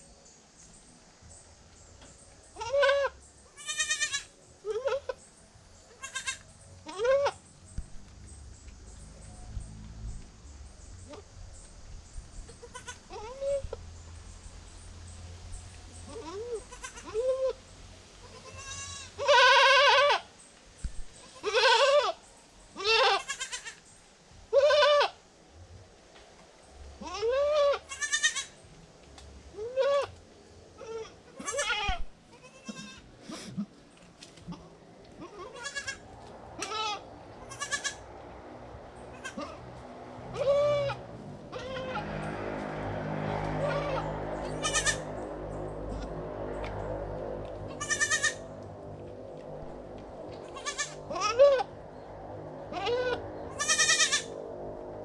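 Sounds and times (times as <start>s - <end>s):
goat kids bleating: 2.5s - 5.2s, 5.9s - 7.4s, 12.5s - 13.8s, 16.0s - 17.6s, 18.2s - 20.3s, 21.2s - 23.8s, 24.5s - 25.2s, 27.0s - 28.6s, 29.5s - 30.2s, 30.8s - 33.7s, 34.4s - 38.1s, 39.1s - 39.6s, 40.3s - 42.2s, 43.5s - 45.2s, 47.7s - 48.6s, 50.4s - 51.7s, 52.6s - 54.4s.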